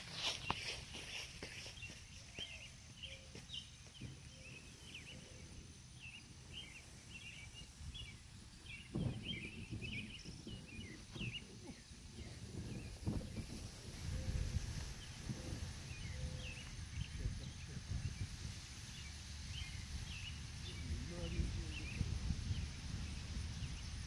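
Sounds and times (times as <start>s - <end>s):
small birds chirping: 0.0s - 24.0s
low rustling with knocks: 7.9s - 16.5s.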